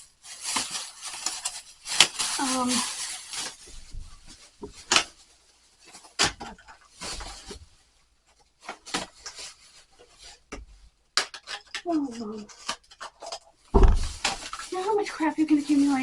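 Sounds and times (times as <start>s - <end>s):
bag rustling: 0.0s - 5.2s, 13.7s - 16.0s.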